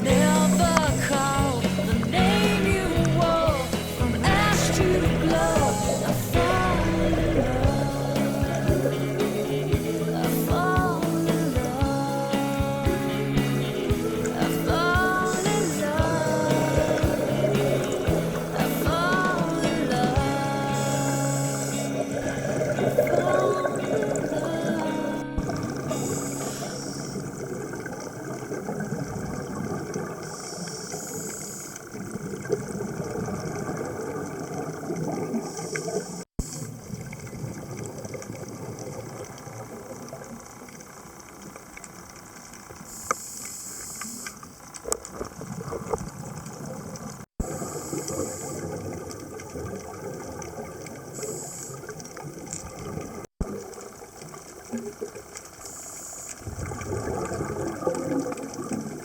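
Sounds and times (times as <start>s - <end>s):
diver's exhaled bubbles hissing: 0.0s - 36.8s
muffled underwater ambience: 0.0s - 59.0s.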